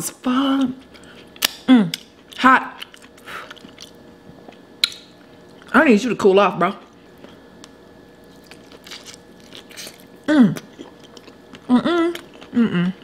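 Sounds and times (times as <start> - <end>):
person chewing wetly: 0.8 - 5.7, 7.2 - 13.0.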